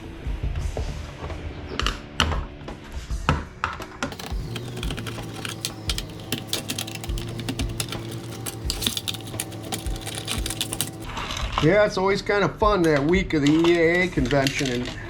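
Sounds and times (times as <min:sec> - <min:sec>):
small parts clicking and clattering: 0:04.1 - 0:11.1.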